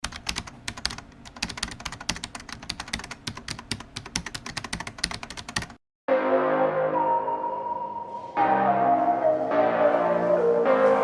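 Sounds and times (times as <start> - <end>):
typing on computer keyboard: 0.0 - 5.8.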